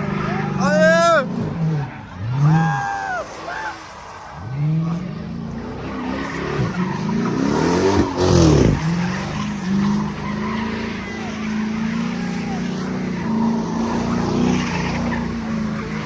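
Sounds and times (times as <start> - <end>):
car engine revving: 0.0 - 16.0
tyres screeching: 5.5 - 16.0.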